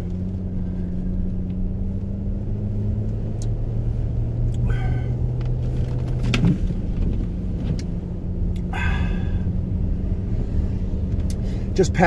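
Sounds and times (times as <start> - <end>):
car engine and tyres rumble: 0.0 - 12.0
click: 3.1 - 3.6.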